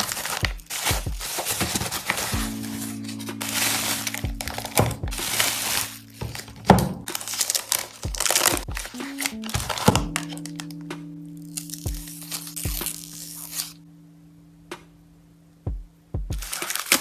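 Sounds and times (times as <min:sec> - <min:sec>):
packaging crinkling and rustling: 0:00.0 - 0:10.6, 0:16.4 - 0:17.0
soft background music: 0:00.0 - 0:17.0.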